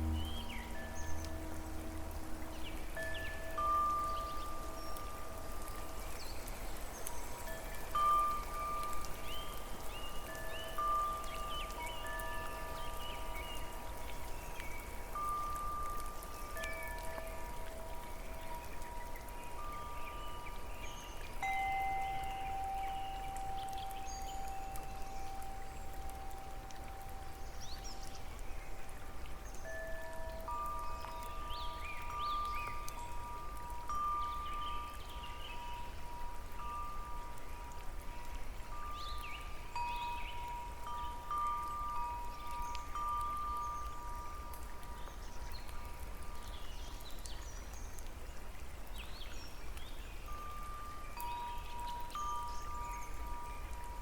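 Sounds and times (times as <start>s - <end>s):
steady low rumble: 0.0s - 3.5s
wind chimes ringing: 0.0s - 46.2s, 50.2s - 54.0s
falling water: 0.0s - 54.0s.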